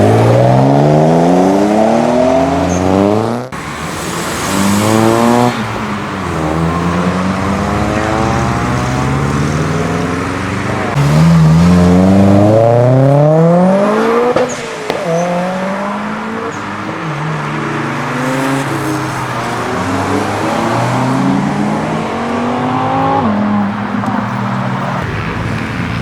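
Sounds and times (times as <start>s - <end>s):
car engine accelerating hard: 0.0s - 16.4s.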